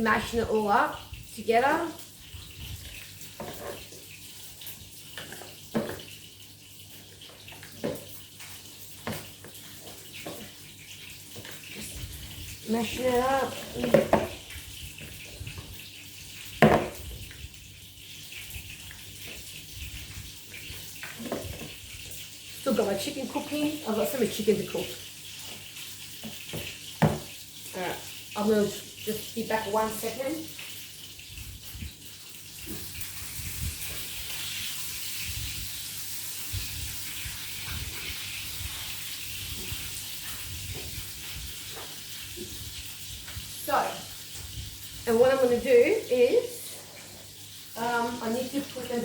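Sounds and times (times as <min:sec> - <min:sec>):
chicken sizzling in a pan: 0:00.0 - 0:49.0
kitchen tap running: 0:00.0 - 0:49.0.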